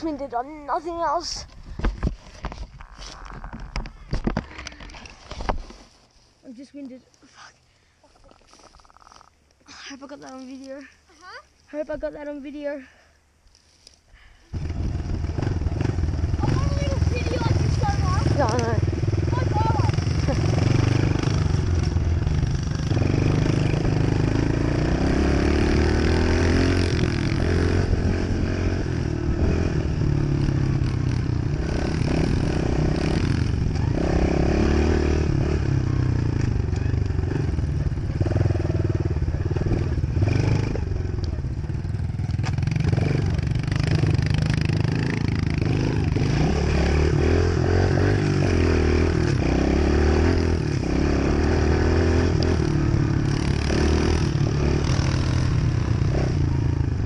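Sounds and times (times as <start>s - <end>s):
dirt bike engine revving: 14.6s - 57.0s.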